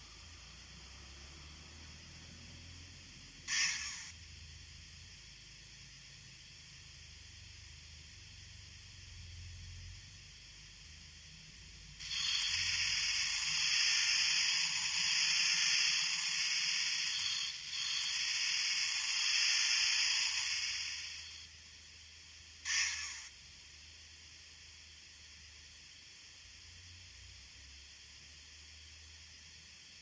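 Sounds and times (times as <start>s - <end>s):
model locomotive steam hiss: 0.0s - 30.0s.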